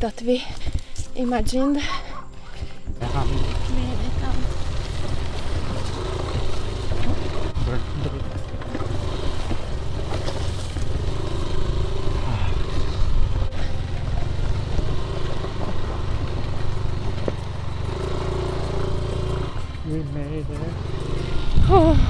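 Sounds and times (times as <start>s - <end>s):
scooter engine running: 1.7s - 22.0s
clatter and scraping on rocks: 2.7s - 19.9s.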